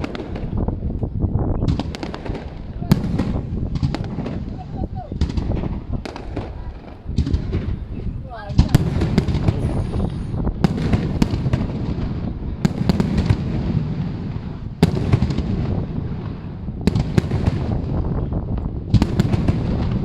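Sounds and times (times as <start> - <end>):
fireworks rumble and crackle: 0.0 - 20.0
firework shells bursting: 8.5 - 17.9.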